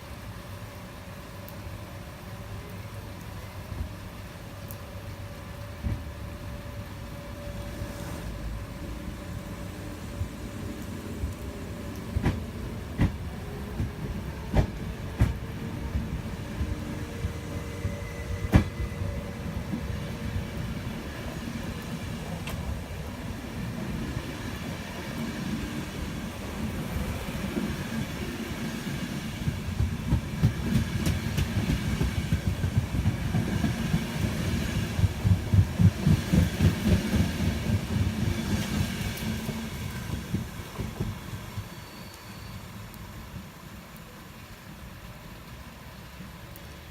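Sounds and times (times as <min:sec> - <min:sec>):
train wheels clattering: 0:11.2 - 0:21.4, 0:27.4 - 0:42.4.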